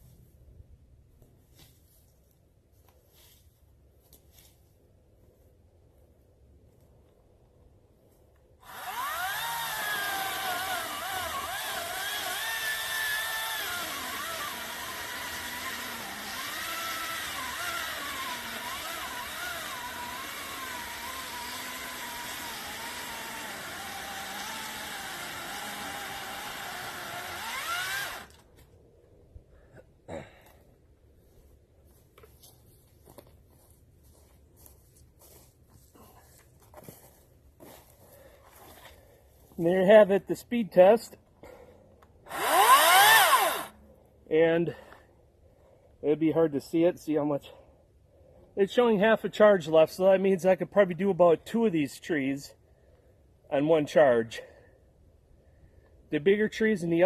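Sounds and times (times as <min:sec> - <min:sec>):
electric chainsaw motor whine: 0:08.6 - 0:28.4, 0:42.3 - 0:43.8.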